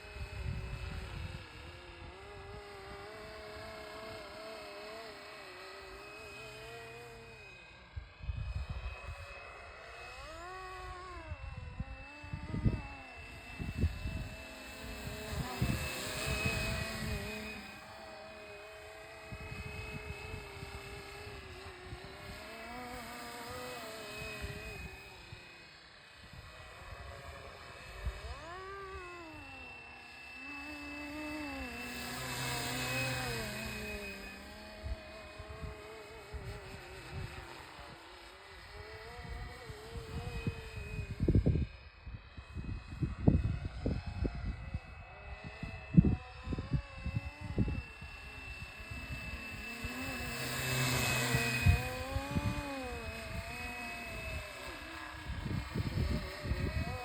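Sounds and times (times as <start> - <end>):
model helicopter rotor whine: 0.0 - 57.0
wind buffeting microphone: 11.0 - 17.6, 42.4 - 54.6, 55.2 - 57.0.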